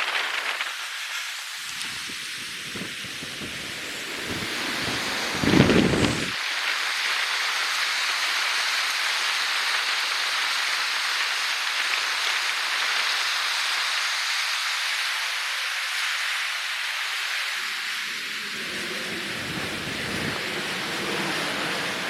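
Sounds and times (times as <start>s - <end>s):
rough lake water: 1.6s - 6.4s, 17.6s - 22.0s
strong wind: 1.6s - 6.4s, 17.5s - 22.0s.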